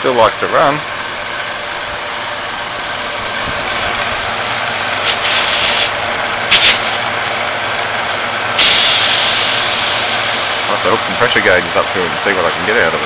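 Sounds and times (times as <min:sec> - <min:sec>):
refrigeration compressor running: 0:00.0 - 0:13.0
bursts of hiss: 0:04.9 - 0:07.2, 0:08.6 - 0:10.9.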